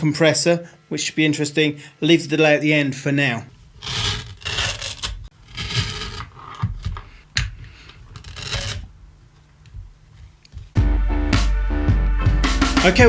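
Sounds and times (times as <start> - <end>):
cables rustling and rubbing: 3.5 - 10.8.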